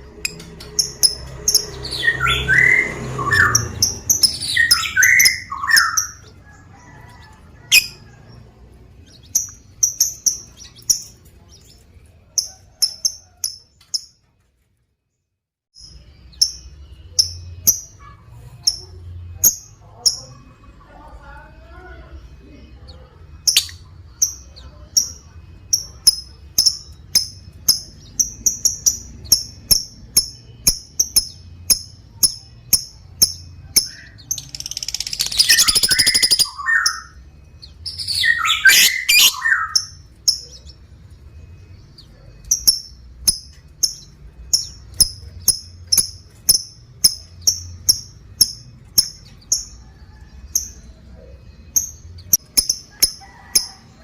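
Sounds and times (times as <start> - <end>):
lovebird chirping: 0.1 - 14.2, 15.8 - 54.0
lovebird chattering trills: 7.6 - 8.1, 22.9 - 40.9.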